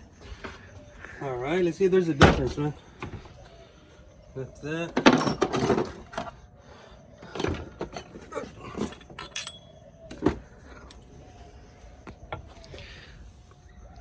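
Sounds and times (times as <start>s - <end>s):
metal parts clinking and knocking: 4.9s - 6.4s, 7.3s - 11.0s.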